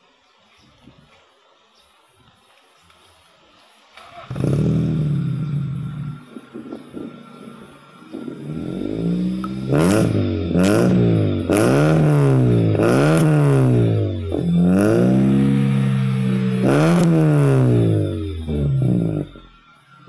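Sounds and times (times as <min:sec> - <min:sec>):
car engine revving: 0:04.0 - 0:20.0.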